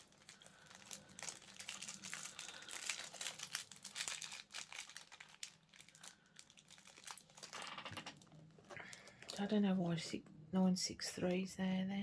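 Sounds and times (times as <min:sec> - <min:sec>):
plastic bags crinkling: 0:00.0 - 0:09.6.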